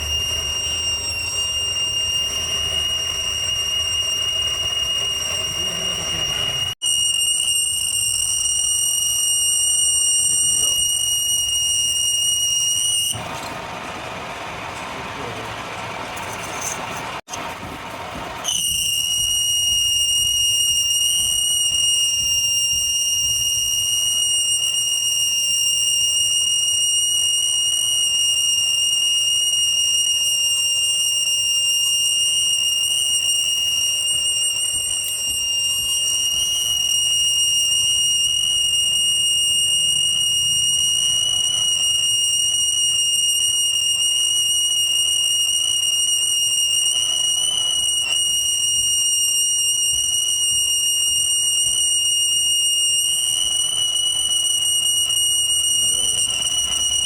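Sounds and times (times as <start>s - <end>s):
high-pitched whistle tone: 0.0s - 13.4s, 16.2s - 17.4s, 18.4s - 57.0s.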